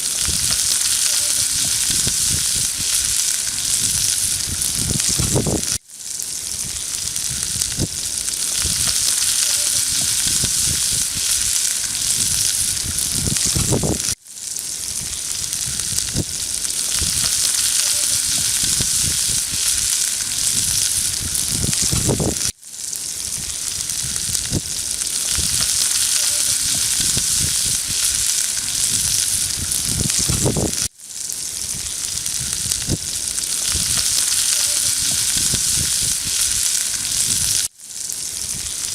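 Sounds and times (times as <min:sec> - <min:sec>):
campfire crackles: 0:00.0 - 0:38.9
food sizzling in a skillet: 0:00.0 - 0:38.9.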